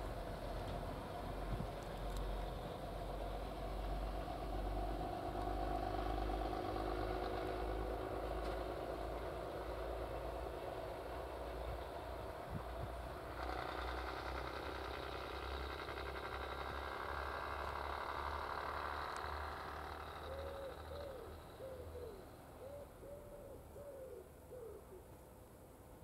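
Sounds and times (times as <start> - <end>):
diesel train engine and wheels: 0.0 - 26.0
pigeon cooing: 20.2 - 25.1.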